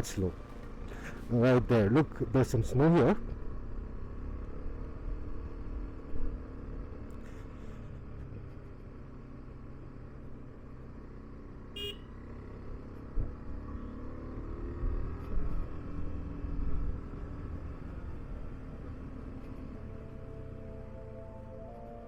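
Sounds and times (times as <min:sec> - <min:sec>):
horn toot: 0:11.8 - 0:12.0.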